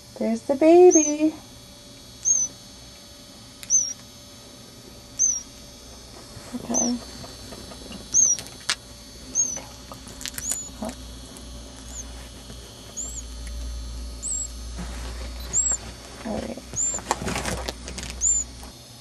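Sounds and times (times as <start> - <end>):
chick cheeping: 0.8 - 1.4, 2.2 - 2.6, 3.6 - 4.0, 5.2 - 5.5, 6.6 - 7.1, 7.9 - 8.4, 9.3 - 11.0, 12.9 - 13.3, 14.2 - 14.6, 15.4 - 15.8, 18.2 - 18.5
sharp clicks: 3.6 - 4.1, 9.4 - 11.0.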